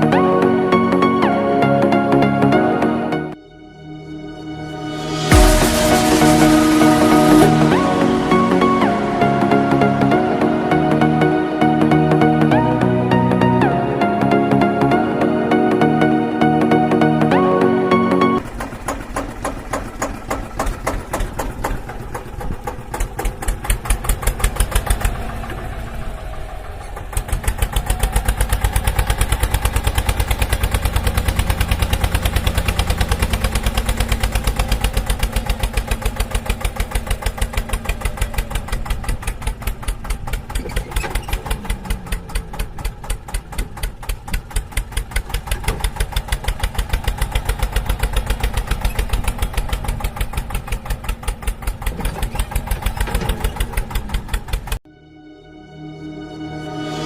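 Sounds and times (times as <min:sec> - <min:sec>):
small engine running: 0:18.4 - 0:54.8.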